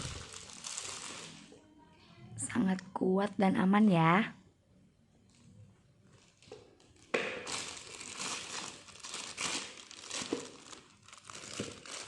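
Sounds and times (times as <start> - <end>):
packaging crinkling and rustling: 0.0 - 1.5, 6.1 - 12.0.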